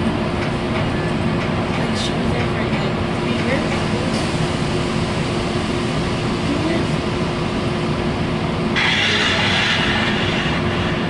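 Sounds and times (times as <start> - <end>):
constant hum: 0.0 - 11.0
train car low rumble: 0.0 - 11.0
air hiss: 8.8 - 11.0.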